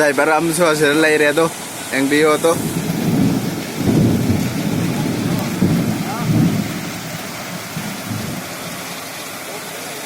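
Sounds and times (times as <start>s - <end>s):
heavy rain falling: 0.0s - 10.0s
deep low thunder rumbles: 2.6s - 8.8s.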